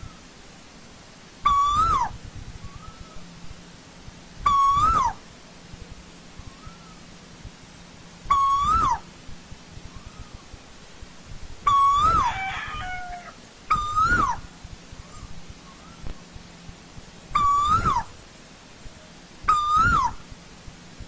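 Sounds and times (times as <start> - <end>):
fainter bird calls: 0.0 - 0.4, 1.4 - 3.4, 4.4 - 9.1, 9.7 - 10.8, 11.6 - 16.3, 17.3 - 18.2, 18.9 - 20.4
bird whistled calls: 1.4 - 3.3, 4.4 - 5.2, 6.3 - 7.1, 8.3 - 9.1, 9.8 - 10.6, 11.6 - 16.1, 17.3 - 18.1, 19.5 - 20.2.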